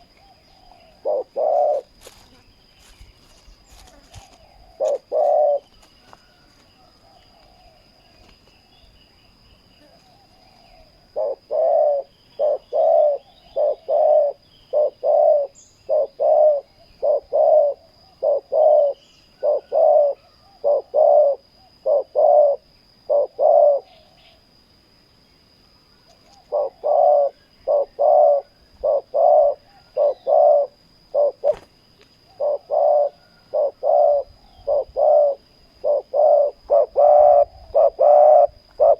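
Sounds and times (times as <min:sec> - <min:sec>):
doves cooing: 0:00.0 - 0:02.2, 0:03.6 - 0:08.9, 0:09.7 - 0:24.4, 0:26.2 - 0:38.9.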